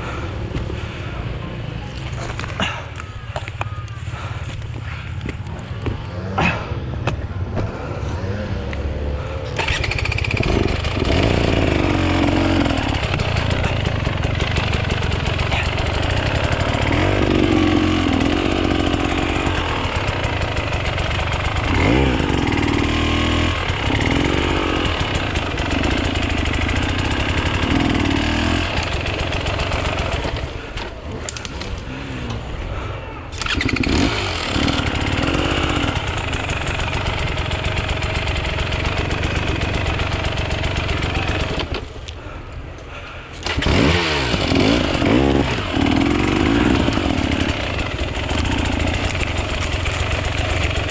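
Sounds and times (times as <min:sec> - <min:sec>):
dirt bike engine revving: 0:08.9 - 0:32.6, 0:33.3 - 0:41.9, 0:43.4 - 0:50.9.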